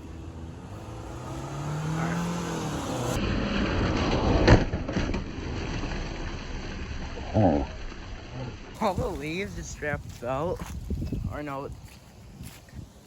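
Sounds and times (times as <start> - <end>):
car engine pulling away: 0.0 - 9.4.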